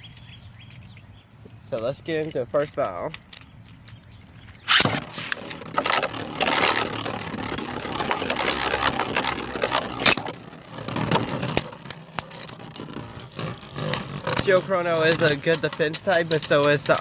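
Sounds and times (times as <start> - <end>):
spinning tops whirring: 4.6 - 17.0
spinning tops clacking together: 4.7 - 17.0.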